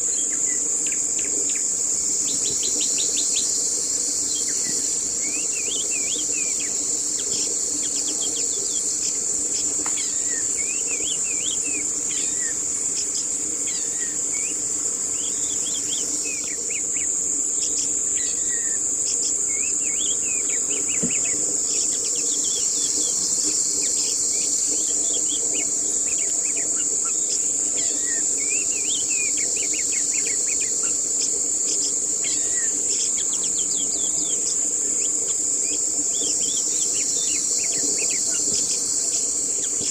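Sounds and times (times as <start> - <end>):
high-pitched insect buzz: 0.0 - 39.9.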